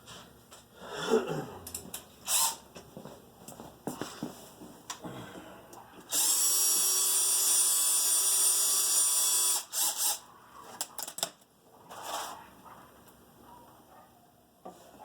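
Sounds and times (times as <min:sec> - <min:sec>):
power drill running: 0:06.1 - 0:10.2.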